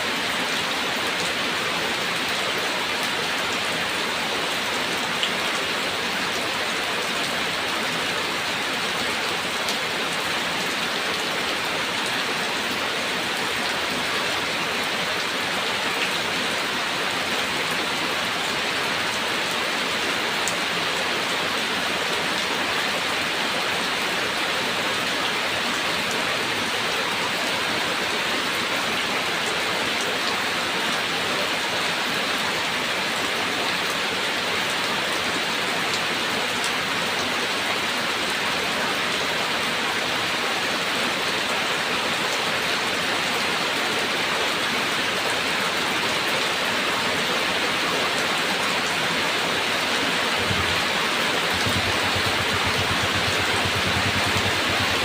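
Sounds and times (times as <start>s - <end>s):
steady rain hiss: 0.0s - 55.0s
raindrops ticking on a surface: 50.4s - 55.0s.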